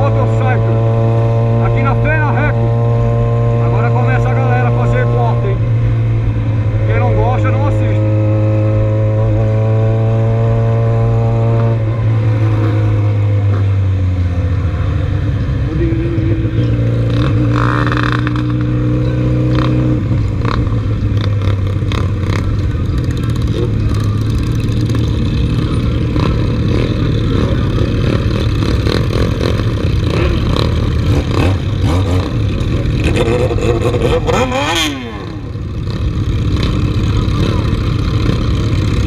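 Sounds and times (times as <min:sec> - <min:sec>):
motorcycle engines revving: 0:00.0 - 0:39.0.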